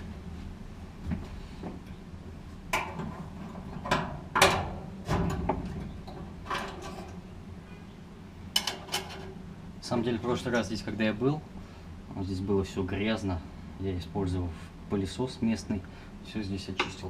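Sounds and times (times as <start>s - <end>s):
steady low hum: 0.0s - 17.0s
tools clanking on metal parts: 2.8s - 7.2s, 8.6s - 9.4s.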